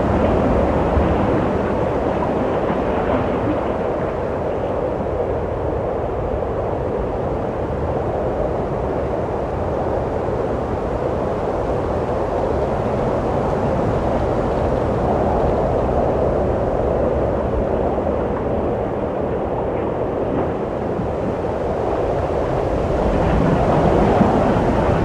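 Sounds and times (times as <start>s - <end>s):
wind blowing: 12.7s - 25.0s.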